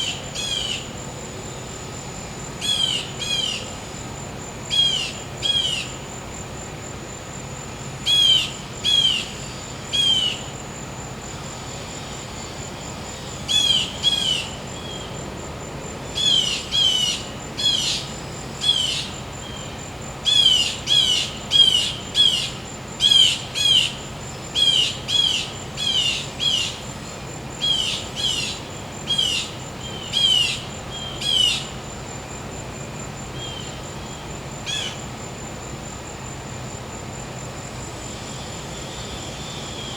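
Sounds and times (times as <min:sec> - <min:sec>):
high insect trill: 0:00.0 - 0:39.9.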